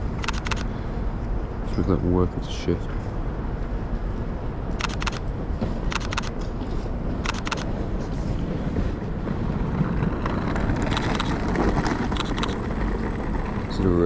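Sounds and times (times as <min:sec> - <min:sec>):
city background noise: 0:00.0 - 0:14.0
wind rumble on microphone: 0:00.0 - 0:14.0
camera shutter double clicks: 0:00.2 - 0:00.7, 0:04.8 - 0:05.2, 0:05.9 - 0:06.4, 0:07.2 - 0:07.7.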